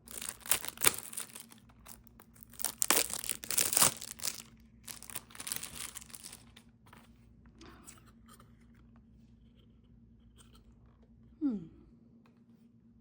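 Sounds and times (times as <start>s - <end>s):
plastic wrapping crinkling and tearing: 0.0s - 6.6s.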